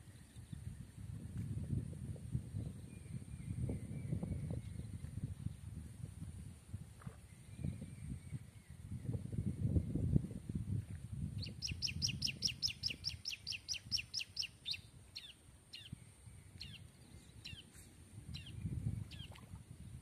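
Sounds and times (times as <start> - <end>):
bird singing high trill: 11.4 - 16.0.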